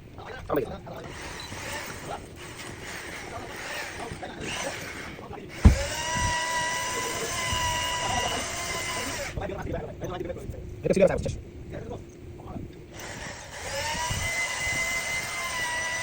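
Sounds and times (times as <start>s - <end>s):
power tool whining: 1.0s - 9.4s, 12.9s - 16.0s
sharp thump: 5.6s - 6.0s.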